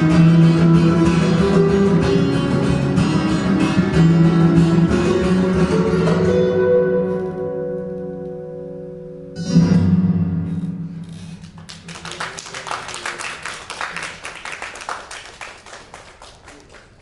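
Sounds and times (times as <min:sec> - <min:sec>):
guitar chord ringing: 0:00.0 - 0:11.0
people clapping: 0:11.4 - 0:17.0.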